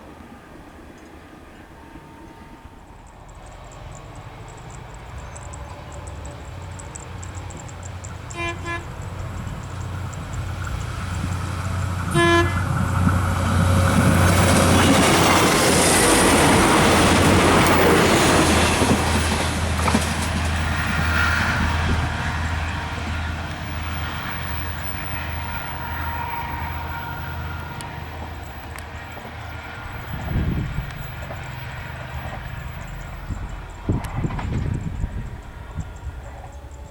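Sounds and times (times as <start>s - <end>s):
train engine and wheels rumbling: 0.0s - 36.9s
train horn blasts: 8.3s - 9.2s, 12.0s - 12.9s.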